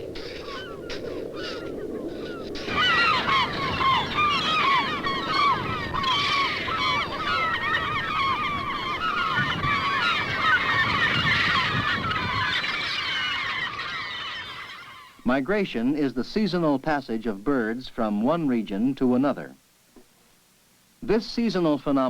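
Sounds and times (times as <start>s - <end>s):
flock of birds calling: 0.0s - 15.2s.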